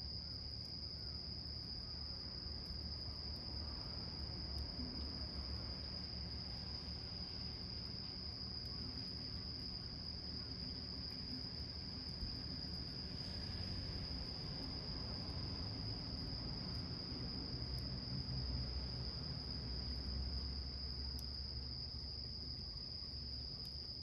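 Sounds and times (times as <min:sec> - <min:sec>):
crickets trilling: 0:00.1 - 0:24.0
faint ticks: 0:19.9 - 0:21.4, 0:22.5 - 0:24.0.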